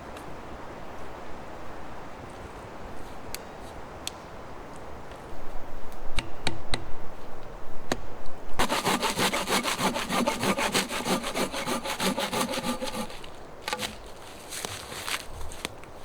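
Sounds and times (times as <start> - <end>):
hand saw cutting wood: 8.6 - 15.2.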